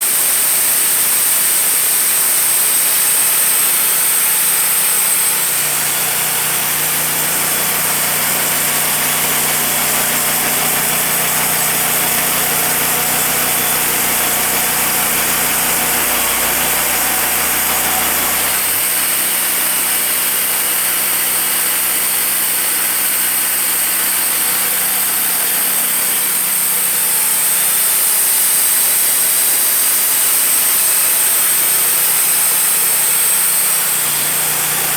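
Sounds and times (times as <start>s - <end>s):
sawmill engine running: 0.0s - 34.9s.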